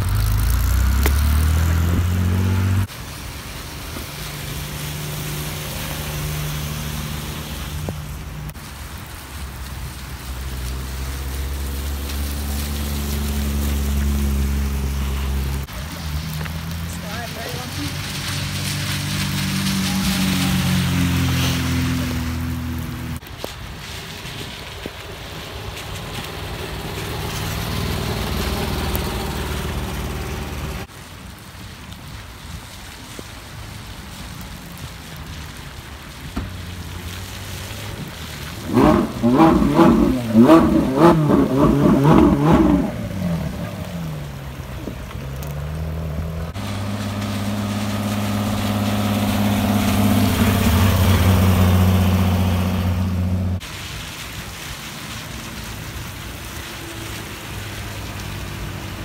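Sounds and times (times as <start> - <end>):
car engine revving hard: 0.0 - 2.9, 38.6 - 44.0, 45.8 - 53.6
sports car engines running: 37.8 - 53.6.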